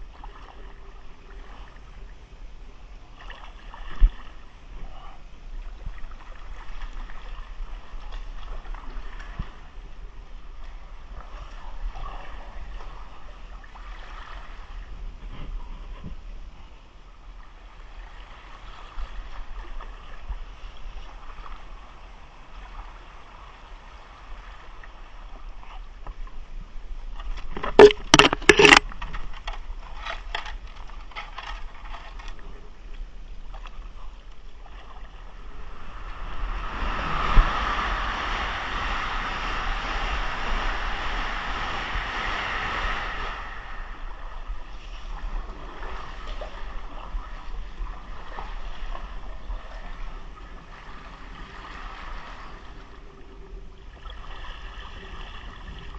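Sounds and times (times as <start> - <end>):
water sloshing around kayak: 0.0 - 55.9
rushing water noise: 27.5 - 29.0, 33.1 - 53.1.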